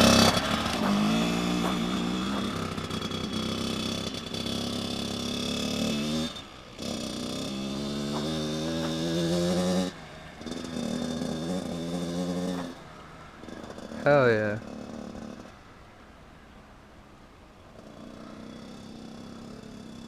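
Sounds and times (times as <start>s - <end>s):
dirt bike engine revving: 0.0s - 15.6s, 17.8s - 20.0s.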